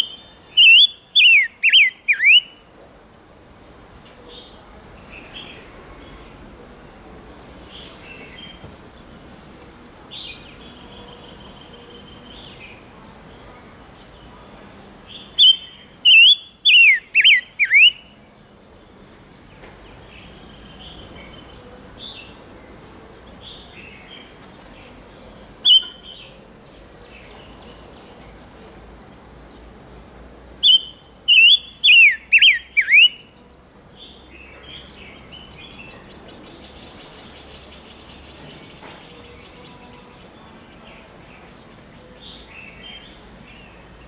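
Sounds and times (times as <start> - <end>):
bird chirping: 0.0 - 2.7, 10.0 - 28.7, 30.6 - 44.0.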